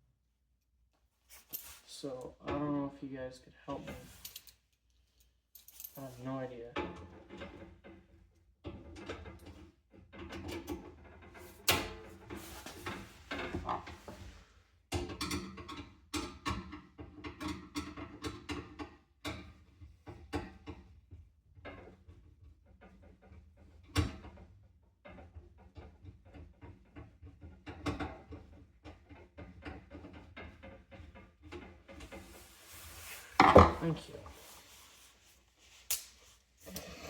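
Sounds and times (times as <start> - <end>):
fan parts clicking and rattling: 5.7 - 35.0.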